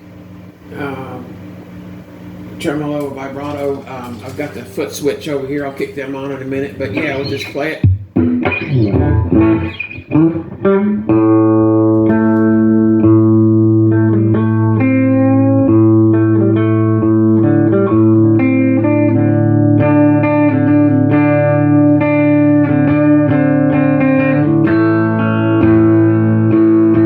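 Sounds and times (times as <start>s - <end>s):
clean electric guitar chords: 6.9s - 27.0s.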